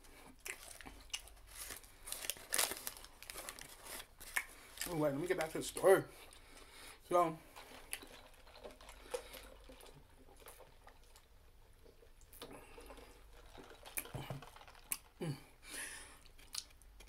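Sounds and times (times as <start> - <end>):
chewing mouth sounds: 0.3 - 1.6, 16.2 - 17.0.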